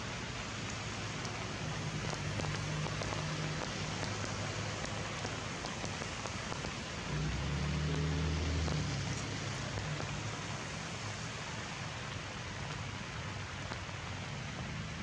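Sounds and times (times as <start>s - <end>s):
sharp drip ticks: 0.0s - 14.9s
rain on leaves: 0.0s - 15.0s.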